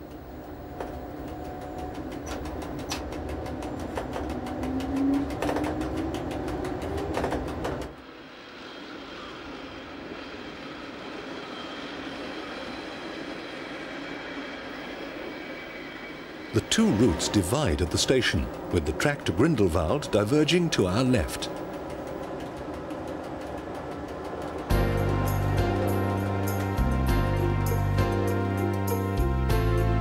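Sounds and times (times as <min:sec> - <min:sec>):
railcar rumbling: 0:00.0 - 0:30.0
wheels clicking over rail joints: 0:00.1 - 0:08.0, 0:17.8 - 0:26.9.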